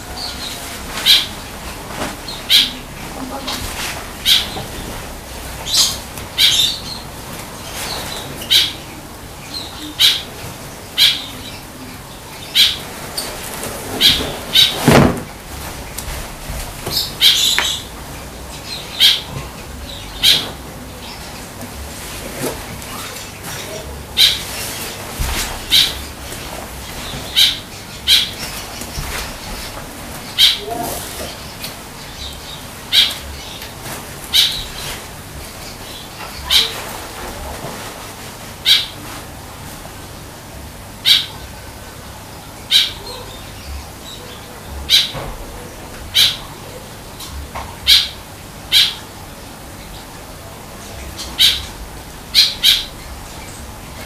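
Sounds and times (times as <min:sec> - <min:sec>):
bird giving harsh calls: 0:04.2 - 0:04.6, 0:14.0 - 0:15.0, 0:30.4 - 0:31.4, 0:36.4 - 0:36.9, 0:38.6 - 0:39.0, 0:41.0 - 0:41.4
bird making sharp calls: 0:04.2 - 0:04.6, 0:14.0 - 0:15.0, 0:27.0 - 0:28.8, 0:30.4 - 0:31.0, 0:38.6 - 0:39.0, 0:41.0 - 0:41.4, 0:47.9 - 0:49.1.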